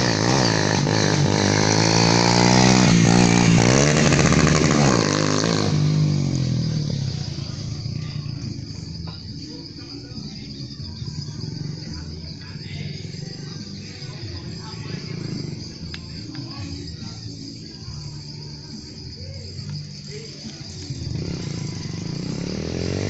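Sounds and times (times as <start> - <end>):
insects trilling: 0.0 - 23.0
motorcycle engine rumbling: 0.0 - 23.0.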